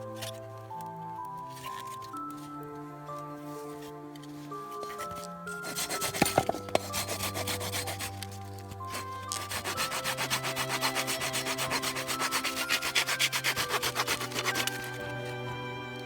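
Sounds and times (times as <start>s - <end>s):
background music with held notes: 0.0s - 16.0s
blade scraping wood: 3.6s - 15.4s.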